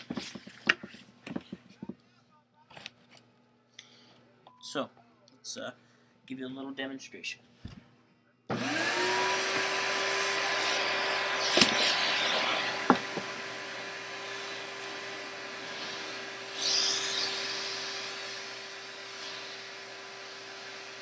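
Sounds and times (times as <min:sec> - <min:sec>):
vacuum cleaner running: 0:08.5 - 0:21.0.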